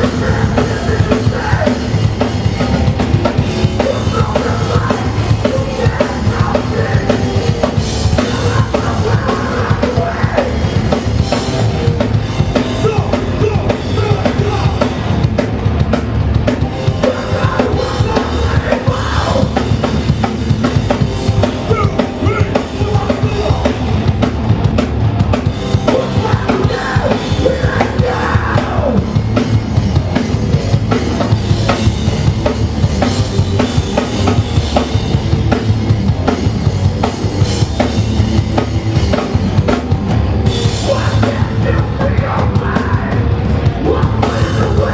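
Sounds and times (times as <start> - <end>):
drum kit pounding fast: 0.0 - 44.9
punk band playing live: 0.0 - 44.9.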